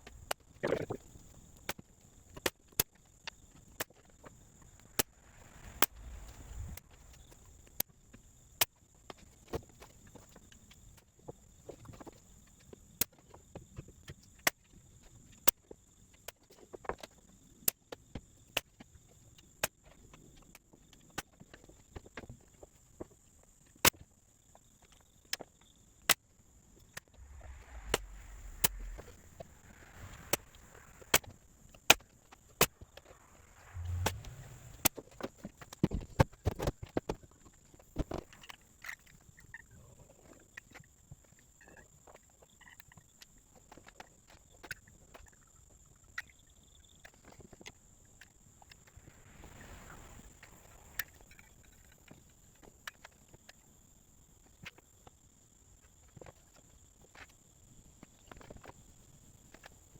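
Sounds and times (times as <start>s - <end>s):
steady high-pitched tone: 27.1s - 31.4s, 32.6s - 35.0s.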